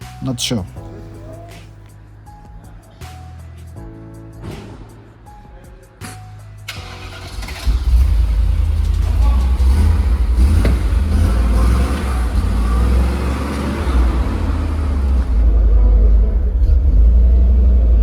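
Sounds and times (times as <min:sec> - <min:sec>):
car engine rumbling: 0:06.7 - 0:18.0.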